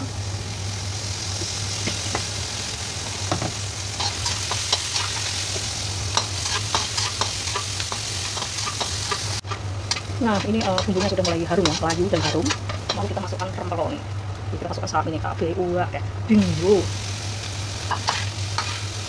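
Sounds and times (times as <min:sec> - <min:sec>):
shallots sizzling in hot oil: 0:00.0 - 0:19.0
metal spatula scraping a wok: 0:06.1 - 0:13.2, 0:17.8 - 0:19.0.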